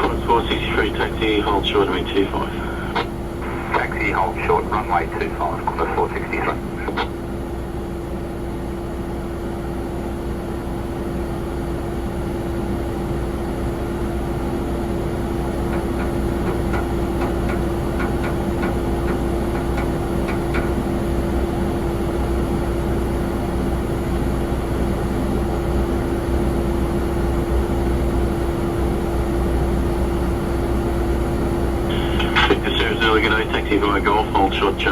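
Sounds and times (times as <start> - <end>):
jet engines whining: 0.0 - 7.3, 31.3 - 34.9.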